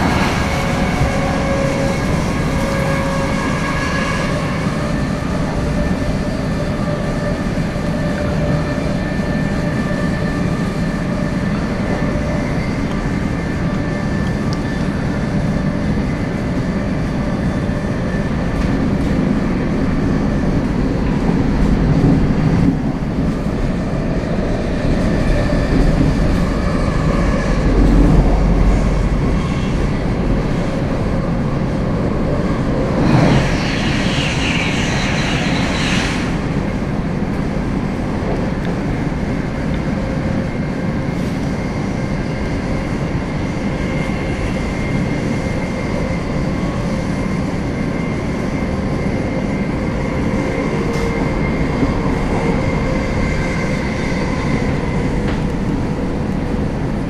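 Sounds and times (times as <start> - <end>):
train wheels rumbling on rails: 0.0 - 57.0
rush of hissing noise: 32.8 - 36.7.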